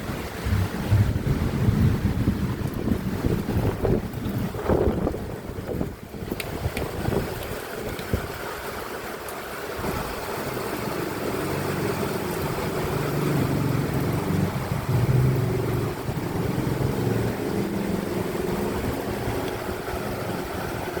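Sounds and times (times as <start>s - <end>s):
low engine drone: 0.0s - 2.9s
wind noise on microphone: 0.0s - 8.9s, 9.7s - 21.0s
rain: 0.0s - 21.0s.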